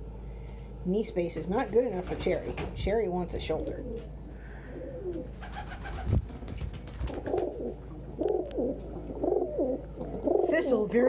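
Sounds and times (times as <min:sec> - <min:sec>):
pigeons cooing: 0:03.5 - 0:06.2, 0:06.9 - 0:10.9.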